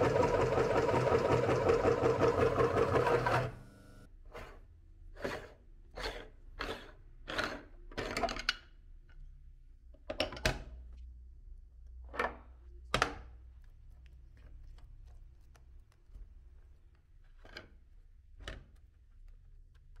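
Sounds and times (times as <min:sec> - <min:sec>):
electric meat grinder humming: 0:00.0 - 0:04.0.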